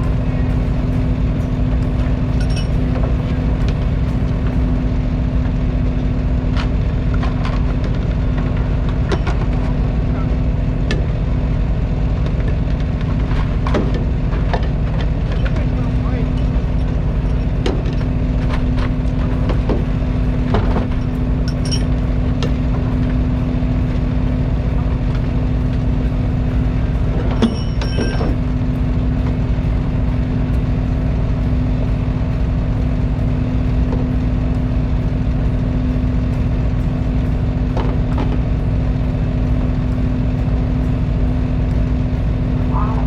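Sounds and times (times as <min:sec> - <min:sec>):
boat engine humming: 0:00.0 - 0:43.0.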